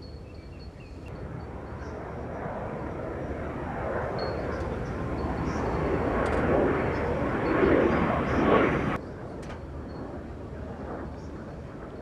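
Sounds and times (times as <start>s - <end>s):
aircraft engine roar: 0.4s - 12.0s.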